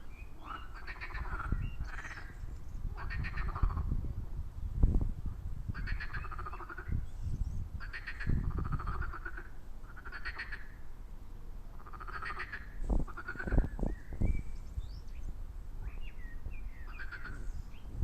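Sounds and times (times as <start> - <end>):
frogs croaking: 0.0 - 4.0, 5.7 - 7.1, 7.8 - 11.0, 11.7 - 13.9, 16.8 - 17.6.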